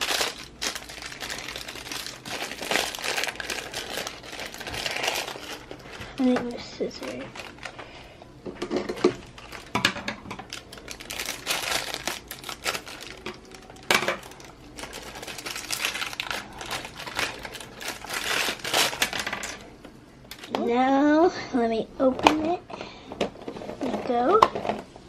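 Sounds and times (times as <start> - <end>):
plastic wrap crinkling: 0.0 - 20.5
plastic pieces clicking and rattling: 8.6 - 19.6.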